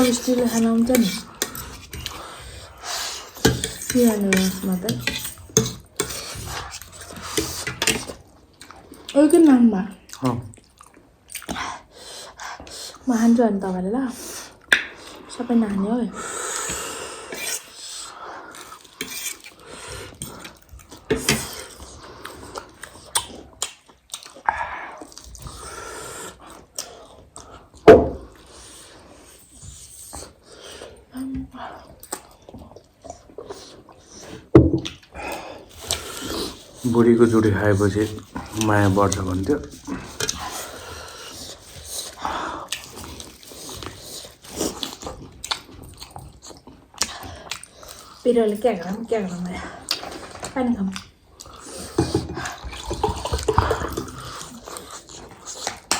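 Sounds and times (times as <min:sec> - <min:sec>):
utensils clinking on plates: 0:03.4 - 0:08.1
biting and chewing food: 0:37.9 - 0:48.2, 0:49.8 - 0:55.9.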